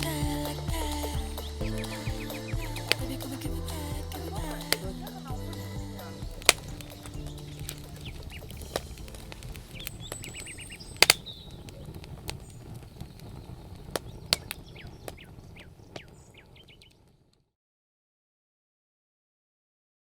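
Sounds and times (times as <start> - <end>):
low outdoor rumble: 0.0 - 13.9
small birds chirping: 0.3 - 17.3
sharp clicks and snaps: 6.3 - 15.2.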